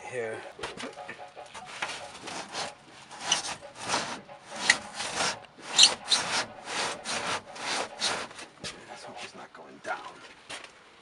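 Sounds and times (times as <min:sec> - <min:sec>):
hand saw cutting wood: 0:01.6 - 0:09.4.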